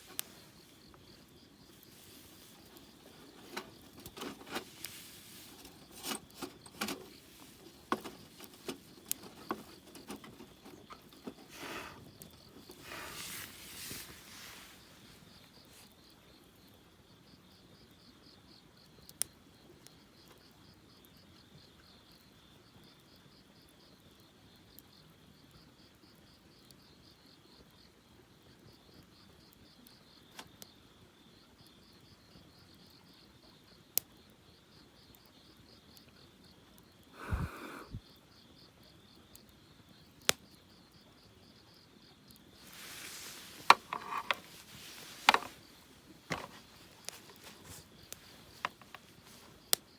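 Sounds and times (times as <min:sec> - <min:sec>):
campfire pops: 0:00.0 - 0:15.5, 0:42.5 - 0:49.9
rustling: 0:00.0 - 0:15.9, 0:42.6 - 0:49.8
crickets chirping: 0:00.0 - 0:49.9.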